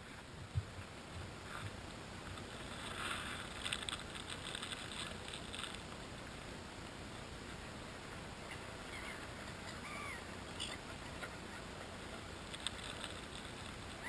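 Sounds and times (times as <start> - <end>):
water lapping and splashing: 0.4 - 6.6.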